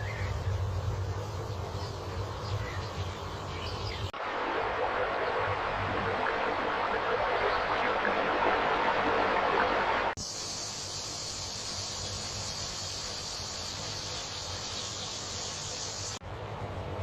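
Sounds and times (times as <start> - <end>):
high-pitched insect chorus: 10.2 - 16.2.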